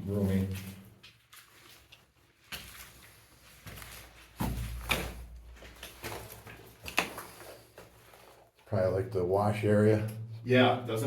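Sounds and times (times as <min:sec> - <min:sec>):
knocks and scuffs: 0:02.4 - 0:08.3.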